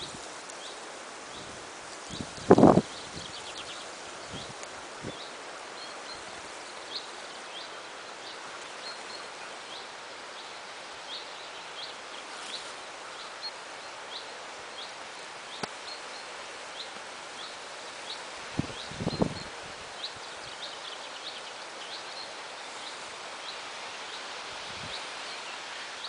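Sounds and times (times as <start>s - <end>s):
background hiss: 0.0s - 26.0s.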